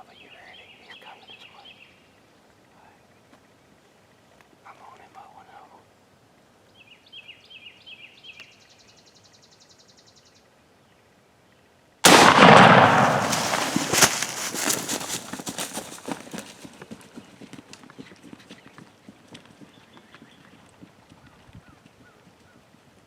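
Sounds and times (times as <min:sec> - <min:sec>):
loud shotgun blast: 0:12.0 - 0:16.1
thumps and rustling: 0:12.4 - 0:16.6.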